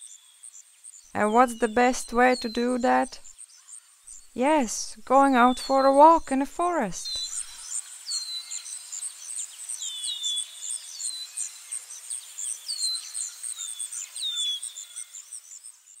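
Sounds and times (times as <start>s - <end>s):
very high bird chirps: 7.0s - 7.6s.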